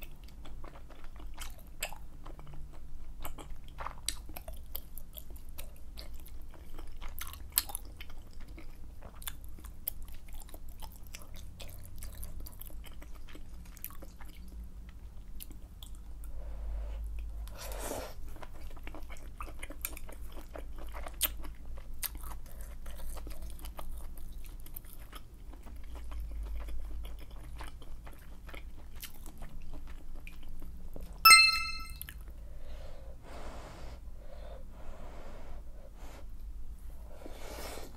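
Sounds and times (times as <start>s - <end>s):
wet chewing: 0.0s - 16.0s, 18.3s - 31.2s
bright chime: 31.3s - 32.0s.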